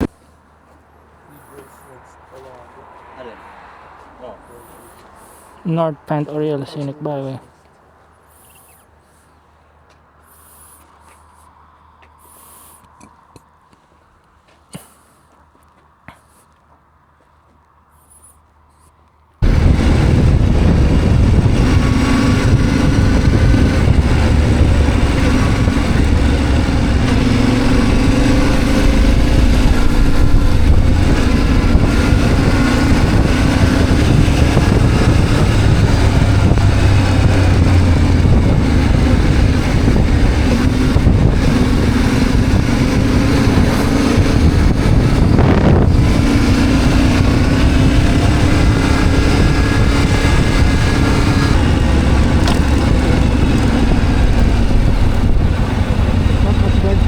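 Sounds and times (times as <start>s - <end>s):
motorcycle engine running: 19.4s - 57.0s
wind rushing over microphone: 19.4s - 57.0s.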